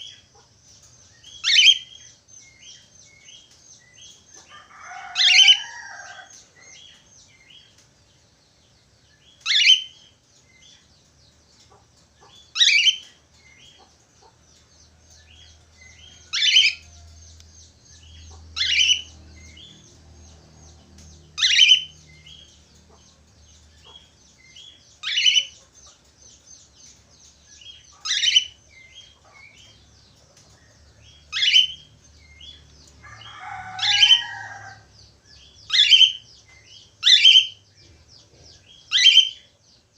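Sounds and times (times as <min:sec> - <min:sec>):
budgerigars warbling: 0:01.3 - 0:02.0, 0:04.4 - 0:06.8, 0:09.4 - 0:10.0, 0:11.7 - 0:13.1, 0:16.0 - 0:17.1, 0:18.0 - 0:19.8, 0:21.4 - 0:23.2, 0:23.8 - 0:26.0, 0:27.6 - 0:29.8, 0:31.3 - 0:34.8, 0:35.7 - 0:37.6, 0:38.6 - 0:39.4.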